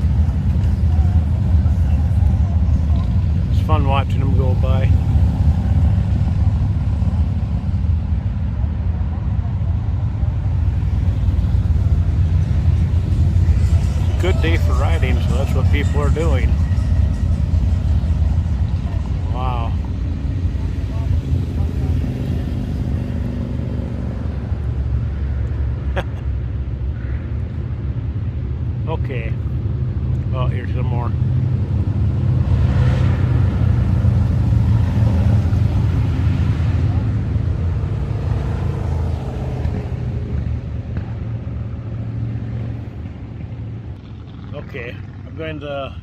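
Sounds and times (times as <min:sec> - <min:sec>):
motorcycles riding past: 0:31.1 - 0:46.0.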